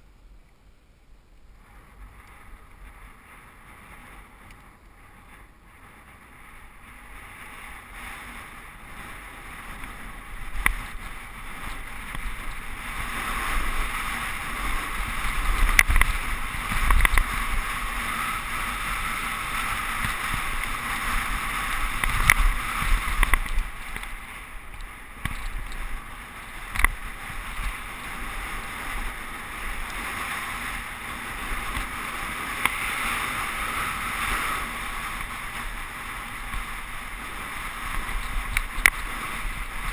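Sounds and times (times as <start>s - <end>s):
bike tyres on dirt: 0.0s - 39.9s
wind rush: 1.5s - 39.9s
bike knocks and clatters: 21.9s - 25.8s.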